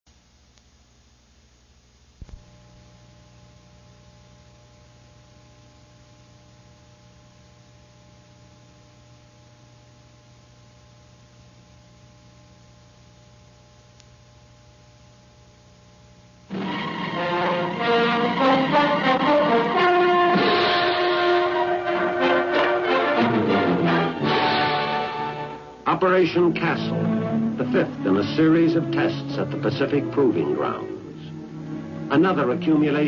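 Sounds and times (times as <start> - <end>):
electrical hum and hiss: 0.1 - 33.0
loud music with brass: 16.5 - 25.8, 26.7 - 33.0.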